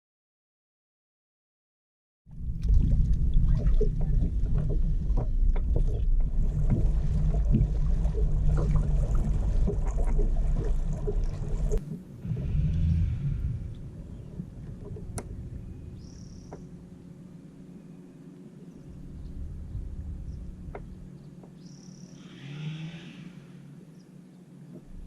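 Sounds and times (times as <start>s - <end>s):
low rumble of kayak on water: 2.3s - 25.0s
small knocks and clicks: 20.7s - 21.6s.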